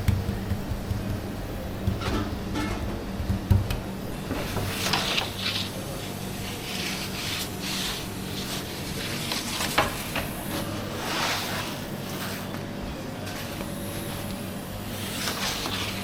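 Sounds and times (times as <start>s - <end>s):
steady low hum: 0.0s - 16.0s
hands rubbing and scraping food: 4.4s - 10.1s, 15.0s - 16.0s.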